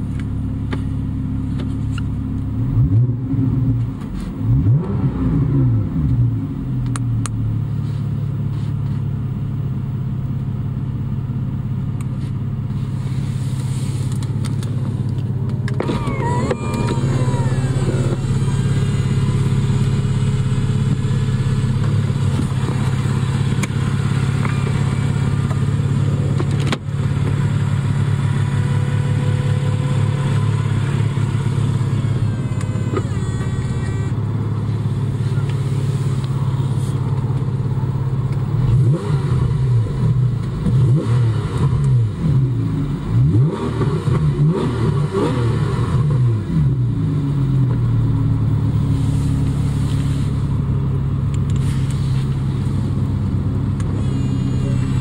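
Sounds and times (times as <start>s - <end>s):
car engine idling and revving: 0.0s - 55.0s
electric motors whining: 15.8s - 20.0s, 30.3s - 34.2s.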